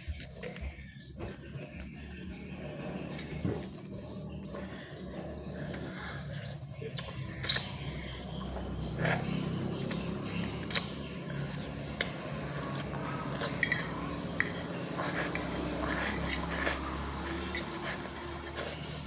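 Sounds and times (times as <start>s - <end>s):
steady low hum: 0.0s - 19.0s
utensils clinking against a dish: 5.8s - 19.0s.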